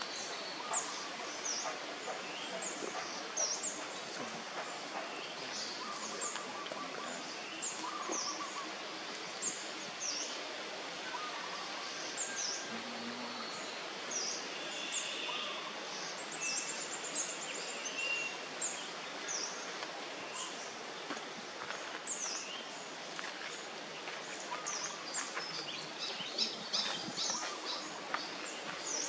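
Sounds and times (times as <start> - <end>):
small birds chirping: 0.0 - 29.0
steady outdoor hiss: 0.0 - 29.0.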